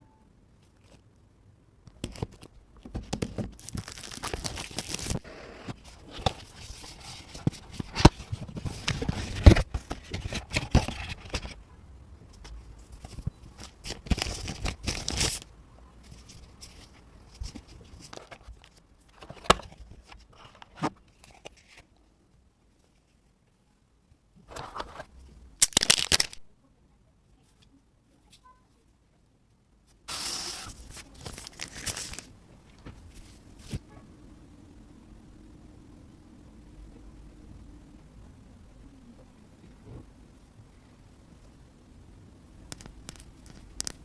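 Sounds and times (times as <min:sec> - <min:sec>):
plastic wrap tearing and crinkling: 0:03.2 - 0:05.2, 0:13.6 - 0:15.5, 0:25.6 - 0:26.4, 0:30.1 - 0:32.3.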